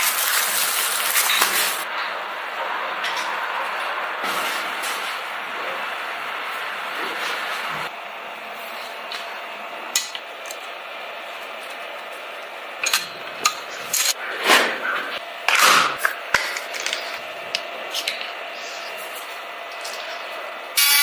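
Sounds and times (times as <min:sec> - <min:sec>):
metal tools clicking and scraping: 0:12.8 - 0:14.2, 0:15.5 - 0:18.3.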